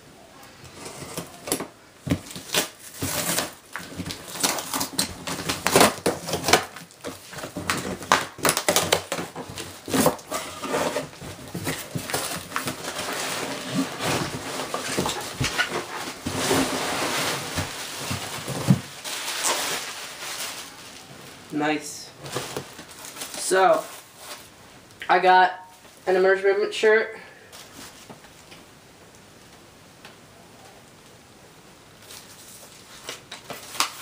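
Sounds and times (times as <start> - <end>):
packaging rustling: 0.7 - 21.5, 22.2 - 24.6, 32.0 - 34.0
knocks and clicks of packaging: 1.0 - 16.7, 17.4 - 19.7, 22.2 - 23.4
packaging tearing: 1.0 - 21.1, 32.0 - 34.0.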